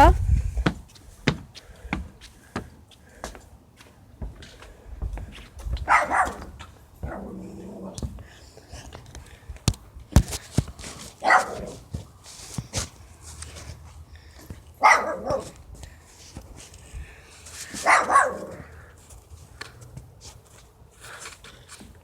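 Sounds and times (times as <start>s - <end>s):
dog barking: 5.9s - 7.4s, 11.2s - 11.8s, 14.8s - 15.6s, 17.8s - 18.7s.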